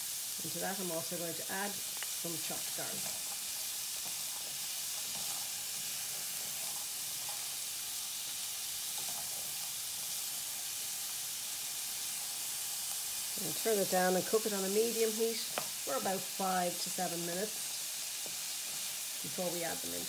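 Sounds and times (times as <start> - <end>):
vegetables sizzling in a frying pan: 0.0 - 20.0
wooden spoon stirring: 3.0 - 7.6.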